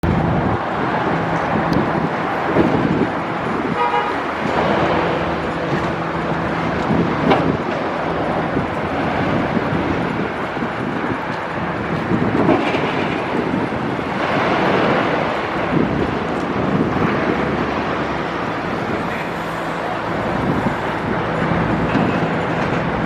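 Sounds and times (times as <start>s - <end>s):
street traffic: 0.0s - 23.0s
car horn toot: 3.7s - 4.2s.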